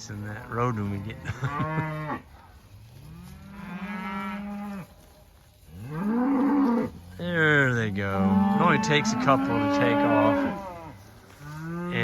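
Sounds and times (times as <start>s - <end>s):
cattle mooing: 5.8s - 12.0s.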